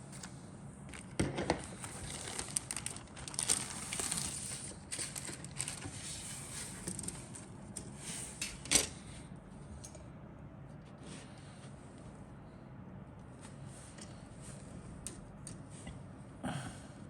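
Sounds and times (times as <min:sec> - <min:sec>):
packaging crinkling: 0:00.9 - 0:07.5.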